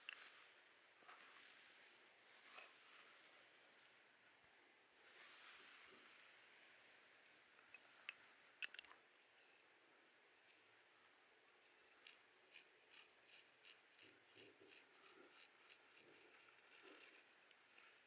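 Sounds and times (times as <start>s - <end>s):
faint scratching on skin: 11.6s - 18.0s.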